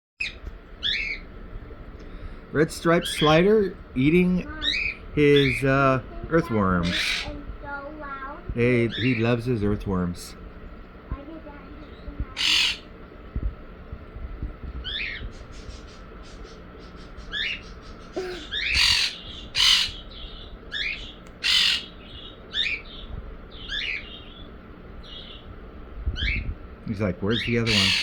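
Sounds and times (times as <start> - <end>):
parrots chirping: 0.2 - 1.3, 2.8 - 3.7, 4.3 - 5.8, 6.4 - 7.4, 8.7 - 9.5, 11.9 - 12.9, 14.8 - 25.5, 26.2 - 26.5, 27.3 - 28.0
parrot harsh squawks: 6.8 - 7.3, 12.4 - 12.9, 18.2 - 20.0, 20.7 - 21.9, 27.6 - 28.0.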